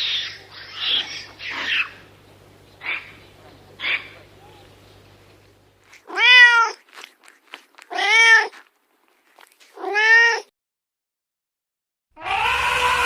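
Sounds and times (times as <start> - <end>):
cat meowing: 0.0 - 2.0, 5.9 - 6.9, 7.9 - 8.6, 9.8 - 10.5.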